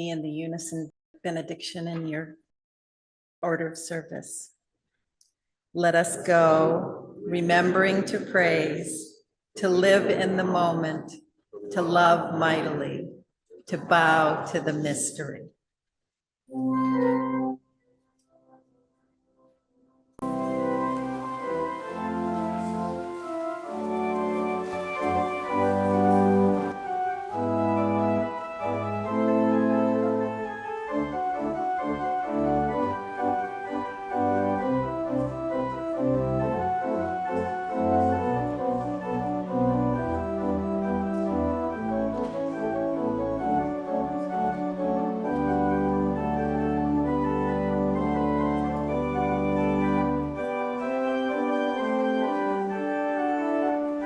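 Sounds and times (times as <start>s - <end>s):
church organ playing chords: 16.5s - 17.6s, 20.2s - 54.0s.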